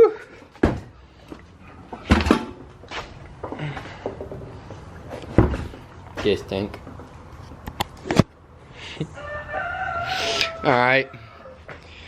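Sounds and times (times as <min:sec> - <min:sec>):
objects knocking being set down: 0:00.5 - 0:00.9, 0:01.9 - 0:05.8.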